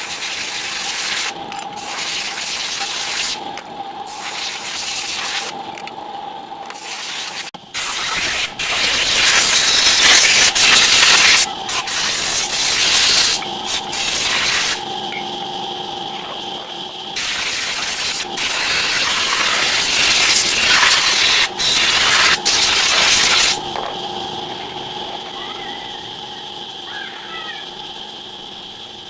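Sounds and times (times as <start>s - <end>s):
hissing spray bursts: 0.0s - 3.4s, 4.1s - 5.6s, 6.8s - 14.8s, 17.1s - 23.7s.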